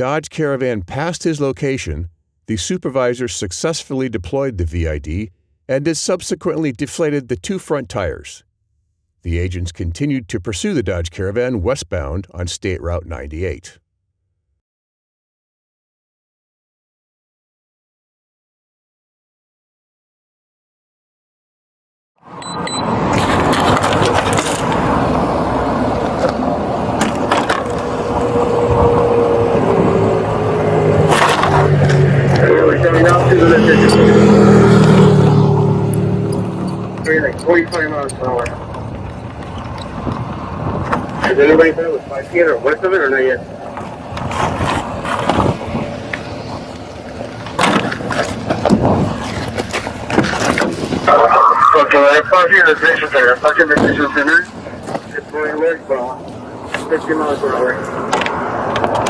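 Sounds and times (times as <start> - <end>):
road and wind noise: 22.2 - 59.0
vehicle engine: 22.3 - 59.0.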